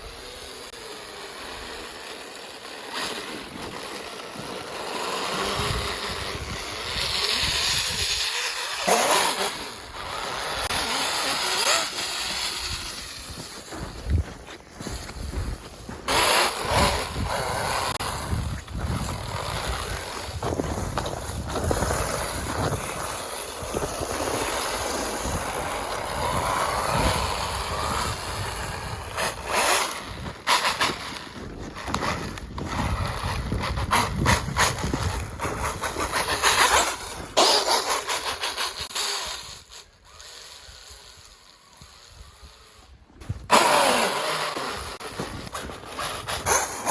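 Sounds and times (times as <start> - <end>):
electric motor whining: 0.0 - 46.9.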